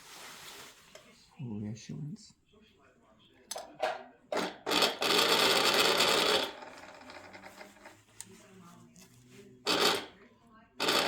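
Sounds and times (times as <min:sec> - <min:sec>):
sewing machine stitching: 0:04.4 - 0:07.8, 0:09.7 - 0:10.1, 0:10.8 - 0:11.0.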